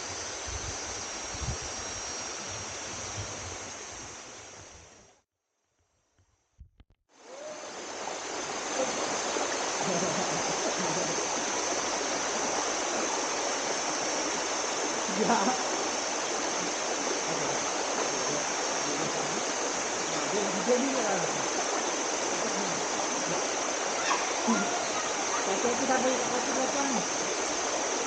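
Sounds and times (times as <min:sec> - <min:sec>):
stream and waterfall rushing: 0:07.1 - 0:28.0.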